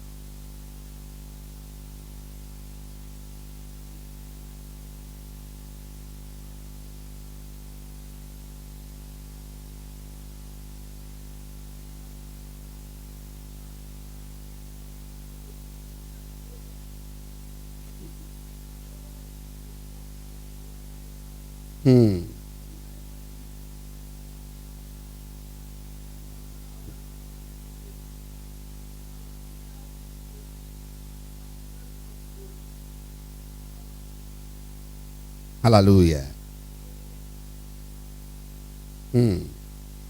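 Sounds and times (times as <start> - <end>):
constant hiss: 35.6 - 36.5.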